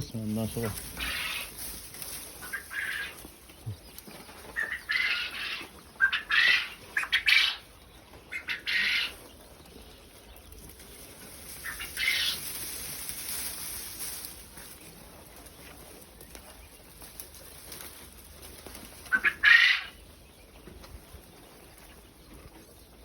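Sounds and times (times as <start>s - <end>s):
quail flapping wings: 11.6s - 13.2s.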